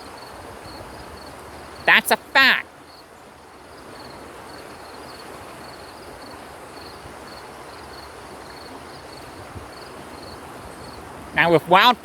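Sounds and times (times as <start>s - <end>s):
insect chirping in high trills: 2.9s - 11.0s.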